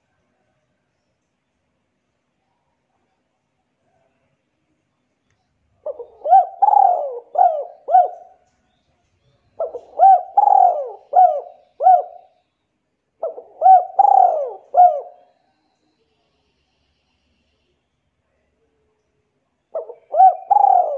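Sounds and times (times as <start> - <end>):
bird calling: 5.9 - 8.4, 9.6 - 12.4, 13.2 - 15.3, 19.7 - 20.9.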